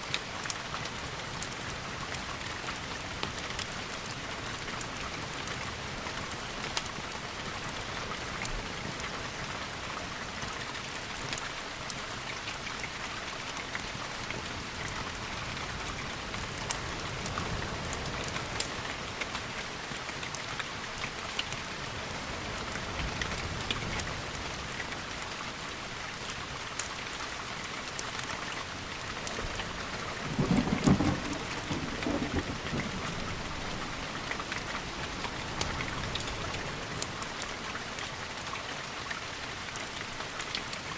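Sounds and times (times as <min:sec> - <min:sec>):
steady rain: 0:00.0 - 0:40.9
thunder rumble: 0:30.2 - 0:34.1.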